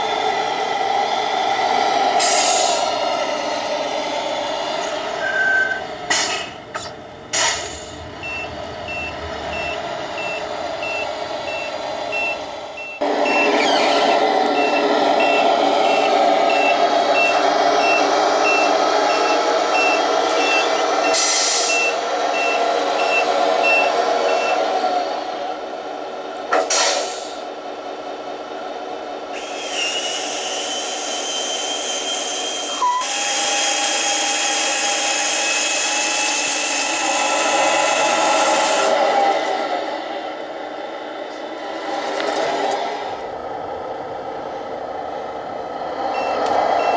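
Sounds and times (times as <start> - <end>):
reversing beeper: 5.2 - 5.9, 8.2 - 13.6, 14.6 - 24.6
truck engine running: 5.8 - 26.5
air hiss: 21.2 - 21.8.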